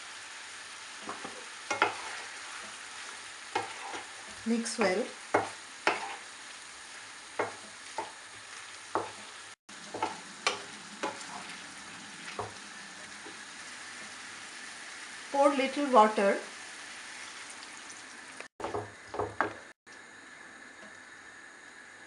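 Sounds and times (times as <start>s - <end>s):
chicken sizzling in hot oil: 0.0s - 22.0s
utensil scraping against pan: 1.0s - 6.3s.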